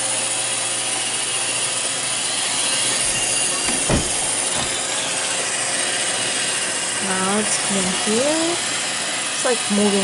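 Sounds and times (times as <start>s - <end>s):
robot vacuum whirring: 0.0s - 10.0s
low thump: 3.7s - 4.8s.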